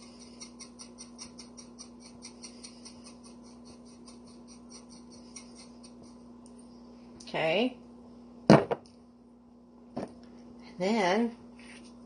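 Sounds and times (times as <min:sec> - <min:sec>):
faint steady hum: 0:00.0 - 0:12.0
pepper ticking onto chicken: 0:00.2 - 0:06.2.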